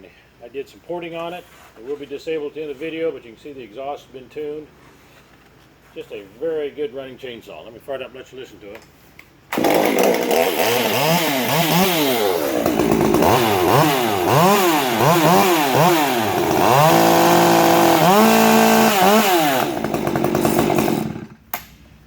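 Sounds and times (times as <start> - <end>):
chainsaw revving: 9.5 - 21.4.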